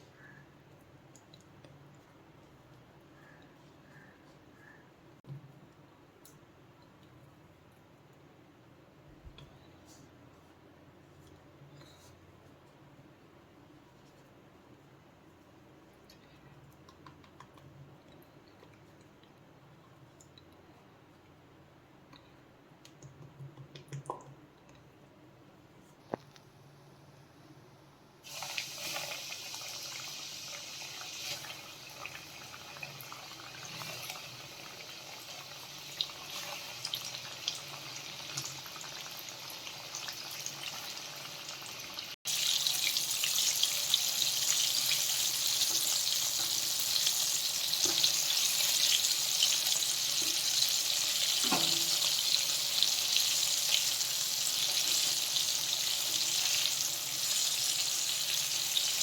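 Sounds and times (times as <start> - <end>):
chicken deep-frying in oil: 28.2 - 59.0.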